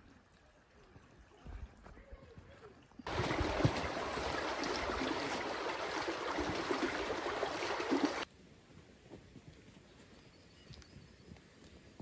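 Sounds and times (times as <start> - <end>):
rushing flowing water: 3.1 - 8.2.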